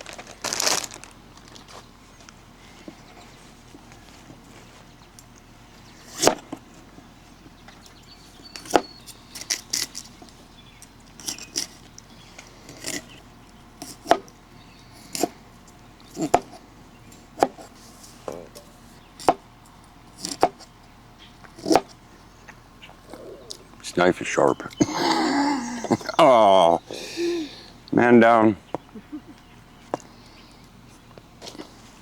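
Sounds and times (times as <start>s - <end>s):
knife chopping on a board: 6.0s - 6.5s, 8.6s - 9.8s, 13.8s - 14.3s, 16.2s - 16.6s, 17.4s - 17.7s, 19.2s - 19.4s, 20.2s - 20.7s, 21.6s - 21.9s.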